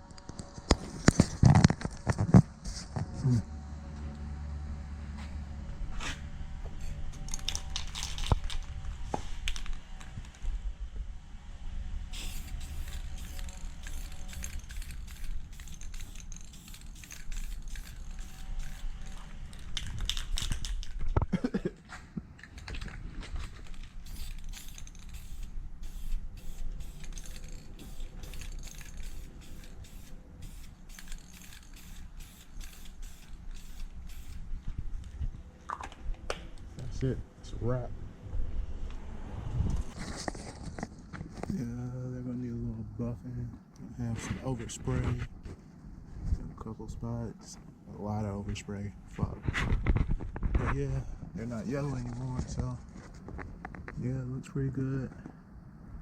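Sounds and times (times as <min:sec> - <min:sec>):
aerosol spray can hissing: 0:12.1 - 0:19.2, 0:23.9 - 0:34.4.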